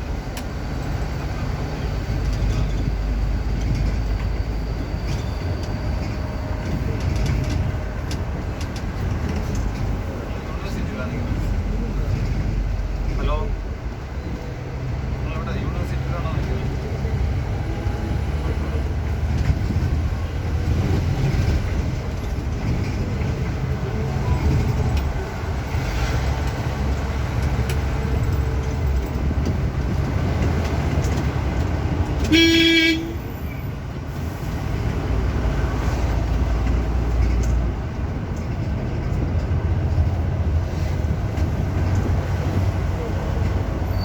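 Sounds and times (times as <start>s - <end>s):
bus engine and road rumble: 0.0s - 44.0s
bus horn blast: 32.2s - 33.4s.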